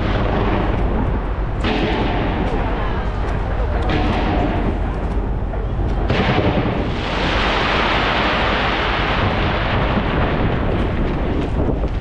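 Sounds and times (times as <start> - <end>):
fireworks bursting: 5.9 - 12.0.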